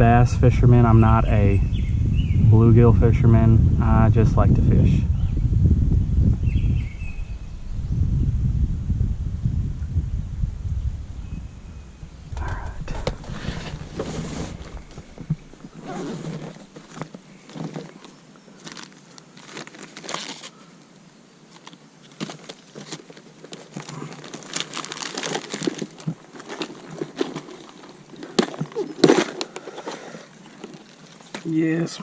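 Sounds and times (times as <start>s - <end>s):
hands rummaging in plastic tackle box: 12.4s - 20.5s, 21.5s - 31.5s
lures rattling and packets crinkling: 12.4s - 20.6s, 21.5s - 31.5s.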